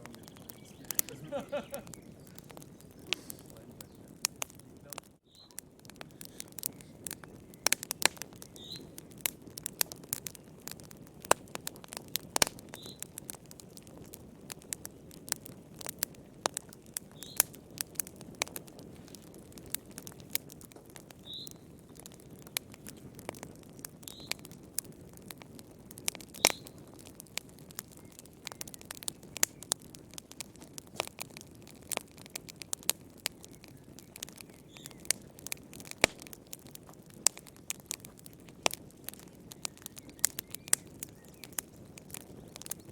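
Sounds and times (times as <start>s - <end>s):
sharp pops: 0.0s - 13.3s, 30.4s - 42.9s
wood fire crackling: 0.0s - 42.9s.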